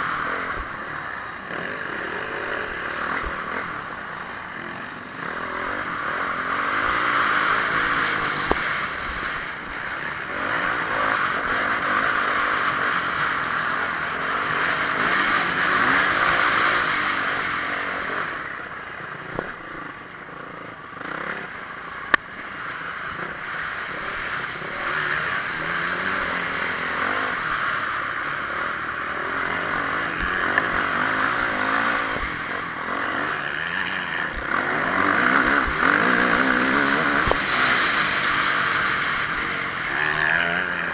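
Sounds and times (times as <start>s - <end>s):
motocross engine revving: 0.0s - 40.9s
rough rushing noise: 24.2s - 40.9s.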